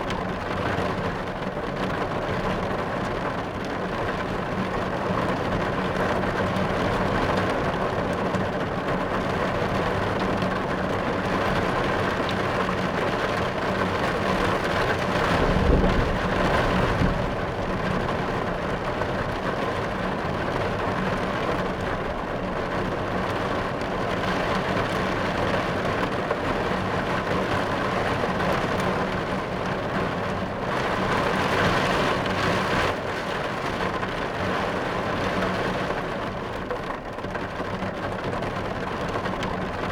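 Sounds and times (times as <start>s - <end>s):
rain on a car roof: 0.0s - 39.9s
low thunder rumble: 15.0s - 19.4s.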